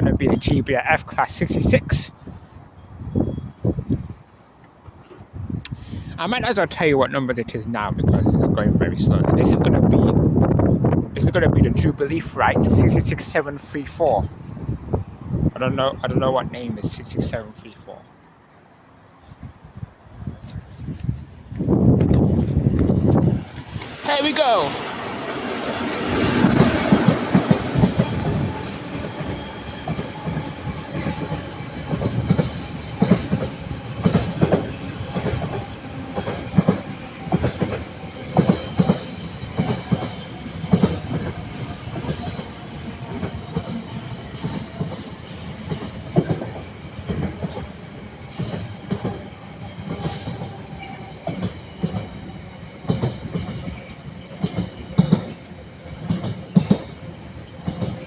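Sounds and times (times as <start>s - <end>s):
train rumble: 0.0s - 18.0s, 19.2s - 58.0s
wagon wheels clacking over rail joints: 52.9s - 55.4s.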